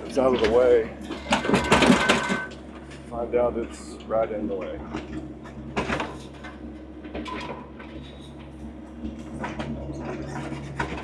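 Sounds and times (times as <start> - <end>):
digger engine running: 0.0 - 11.0
bucket scraping and clunking: 0.3 - 2.6.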